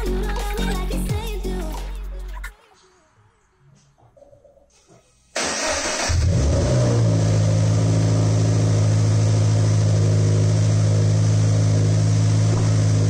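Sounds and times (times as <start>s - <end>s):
car engine starting and idling: 5.4s - 13.0s.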